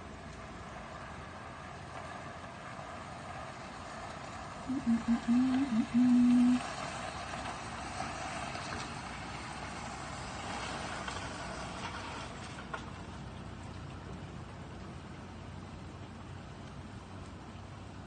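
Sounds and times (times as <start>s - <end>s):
city background hiss: 0.0s - 18.0s
distant traffic: 0.0s - 18.0s
loud pure tone changing pitch: 4.7s - 6.6s.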